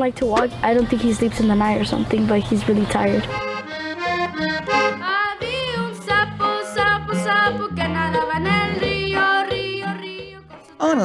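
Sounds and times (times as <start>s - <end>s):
button accordion playing: 0.1s - 5.5s.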